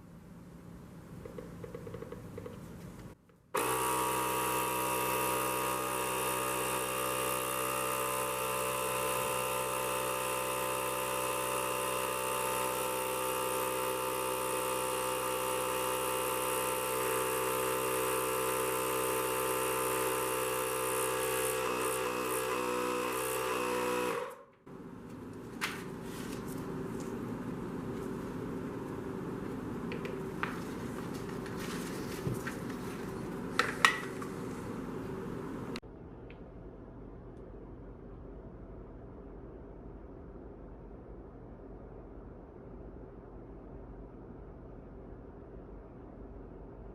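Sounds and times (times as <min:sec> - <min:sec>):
tire inflator compressor humming: 0:01.2 - 0:35.8.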